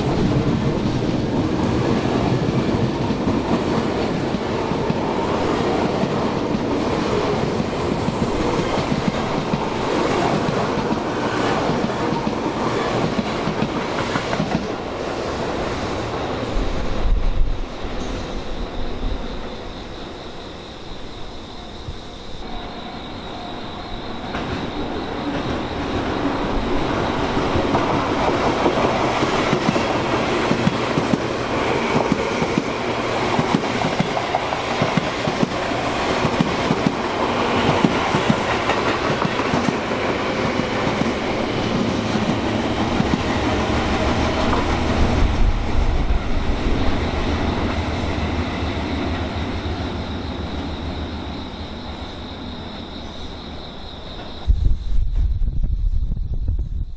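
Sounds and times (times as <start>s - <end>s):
train wheels clacking on rail joints: 0.0s - 15.8s, 23.7s - 45.3s
electric train passing: 0.0s - 54.8s.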